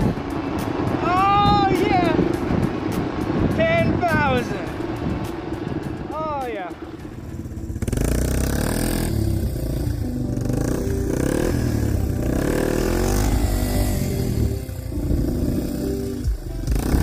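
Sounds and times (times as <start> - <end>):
motorcycle engine revving: 4.6 - 17.0.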